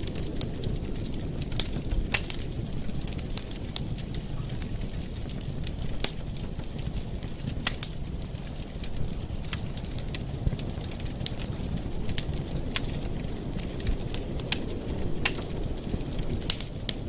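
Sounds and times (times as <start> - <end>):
campfire flames rumbling: 0.0 - 17.0
wood crackling and popping: 0.0 - 17.0.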